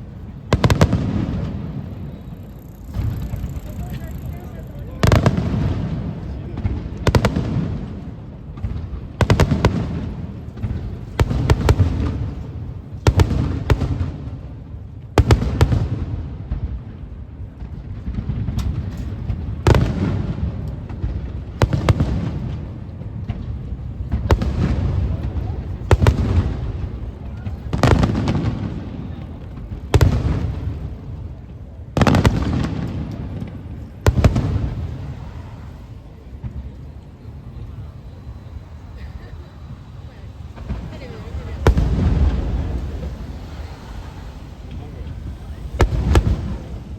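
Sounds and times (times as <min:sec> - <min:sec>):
fireworks sharp bangs: 0:00.0 - 0:46.9
rolling rumble: 0:00.0 - 0:46.9
low echoing boom: 0:32.0 - 0:46.9.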